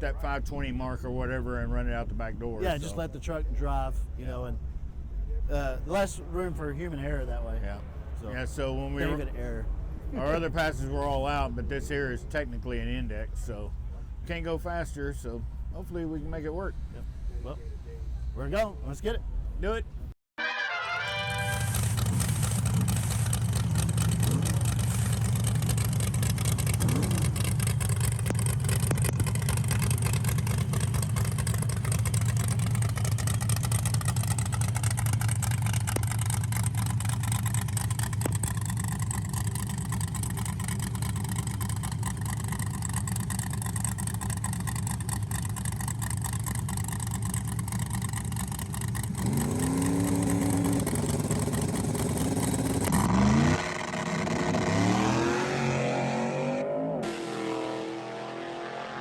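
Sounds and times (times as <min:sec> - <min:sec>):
truck engine idling and revving: 0:21.2 - 0:59.0.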